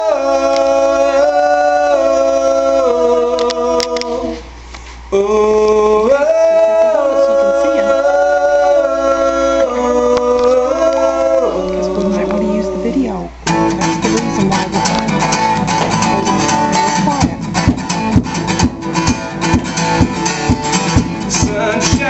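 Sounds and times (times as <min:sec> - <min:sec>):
man and woman singing in harmony: 0:00.0 - 0:13.4, 0:21.2 - 0:22.0.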